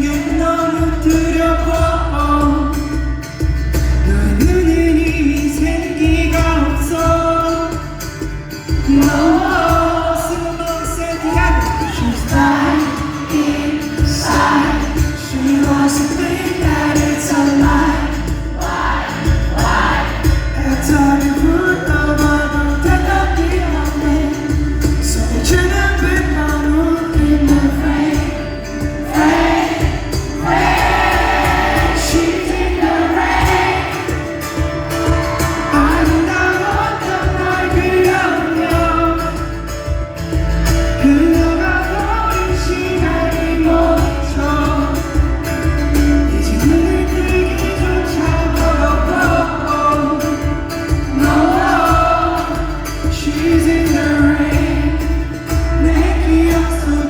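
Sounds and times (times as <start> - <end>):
live pop-rock band: 0.0 - 57.0
person singing: 8.9 - 34.3.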